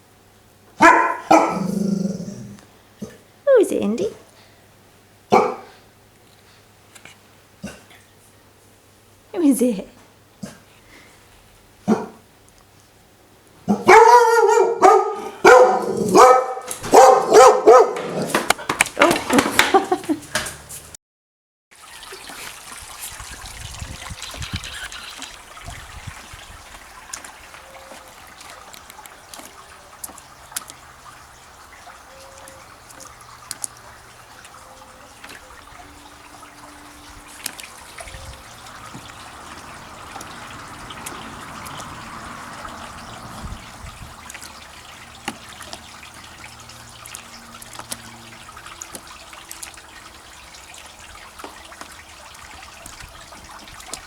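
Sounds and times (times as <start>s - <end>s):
trickling water: 0.0s - 21.0s, 21.7s - 54.0s
dog barking: 0.8s - 1.8s, 5.3s - 5.8s, 11.8s - 12.2s, 13.7s - 18.3s
puppy splashing in water: 13.7s - 21.0s, 21.8s - 54.0s.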